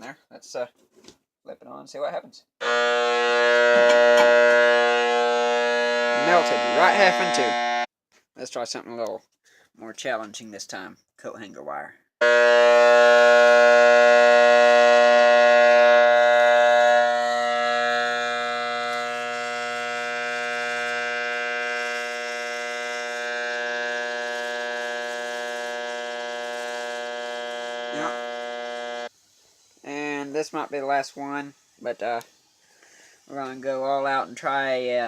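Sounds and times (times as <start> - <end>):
transformer buzzing with mains hum: 2.6 - 7.9, 12.2 - 29.1.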